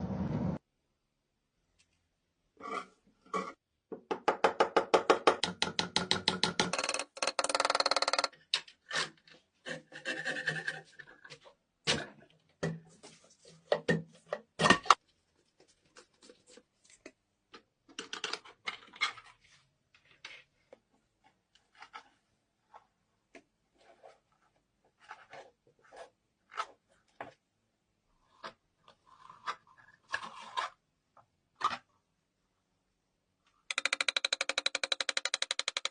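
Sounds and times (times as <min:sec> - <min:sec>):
fast run of clicks: 0:33.7 - 0:35.9.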